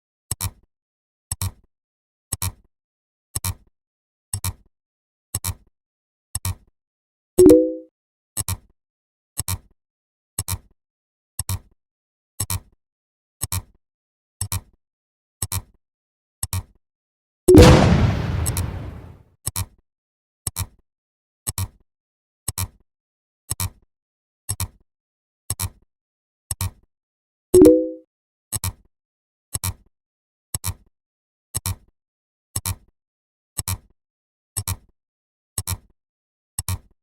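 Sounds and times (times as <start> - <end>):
short sound effect: 17.6 - 19.2.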